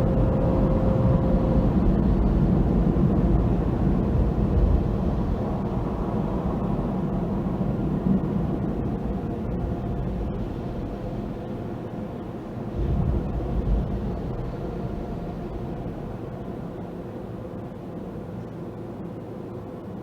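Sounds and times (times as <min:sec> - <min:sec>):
car wash machinery rumbling: 0:00.0 - 0:19.7.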